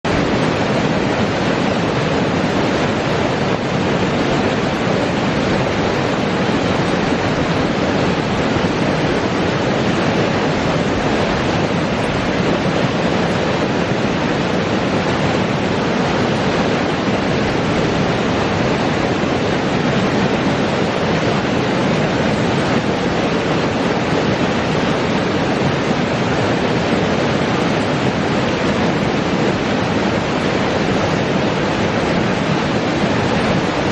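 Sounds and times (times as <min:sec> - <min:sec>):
creek water rushing: 0:00.0 - 0:33.9.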